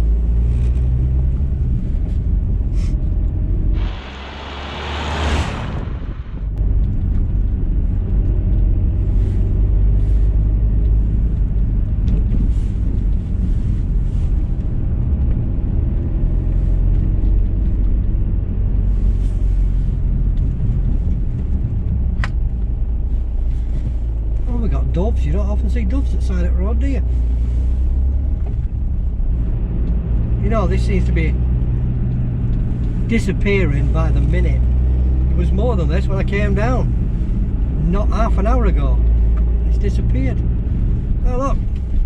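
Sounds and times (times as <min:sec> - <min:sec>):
car engine and tyres rumbling: 0:00.0 - 0:42.0
hiss rising in pitch: 0:03.7 - 0:06.6.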